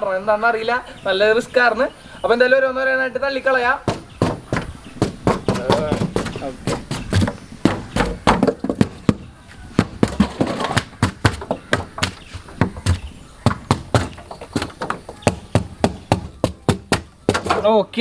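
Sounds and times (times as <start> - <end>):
knocks on metal body: 3.9 - 9.2.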